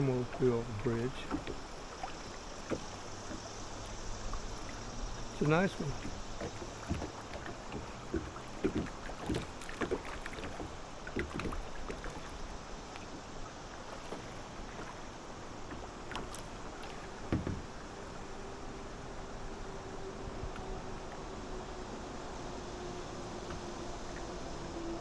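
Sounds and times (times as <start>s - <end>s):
water dripping: 0.0s - 13.1s
kayak paddle splashing: 0.0s - 18.7s.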